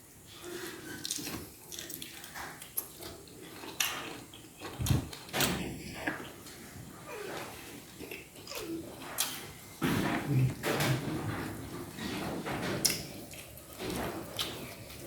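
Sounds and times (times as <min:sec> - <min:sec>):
person chewing food: 0:00.6 - 0:09.8, 0:12.8 - 0:15.0.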